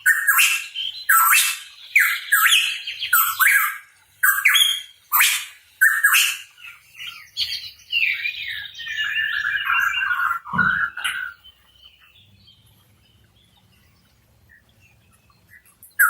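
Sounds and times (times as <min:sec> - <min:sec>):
bird harsh squawking calls: 0:00.0 - 0:12.2
bird warbling chatter: 0:00.0 - 0:16.0.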